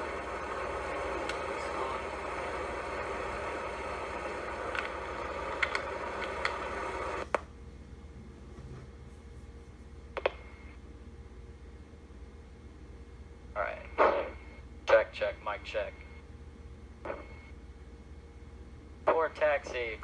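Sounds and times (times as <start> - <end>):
quiet steady hum: 0.0 - 20.0.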